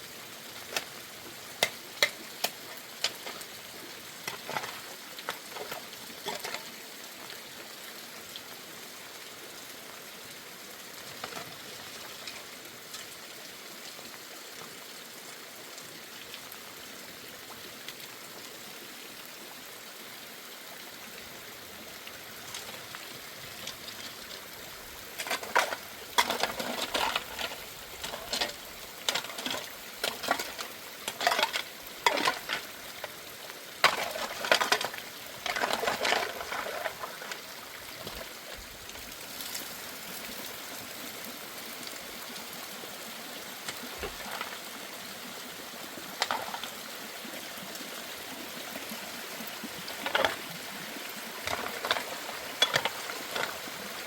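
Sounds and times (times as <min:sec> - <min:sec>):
utensil scraping in a pot: 0:25.2 - 0:33.2, 0:33.8 - 0:37.4.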